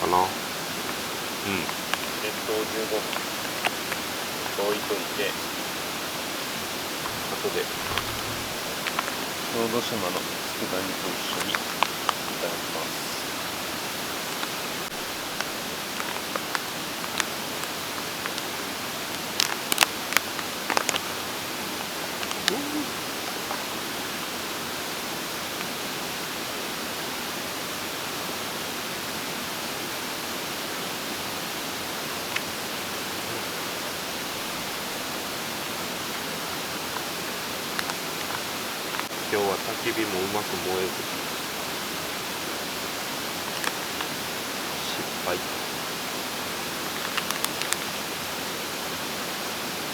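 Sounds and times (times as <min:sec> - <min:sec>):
mountain stream rushing: 0:00.0 - 0:49.9
small clicks: 0:47.0 - 0:47.9.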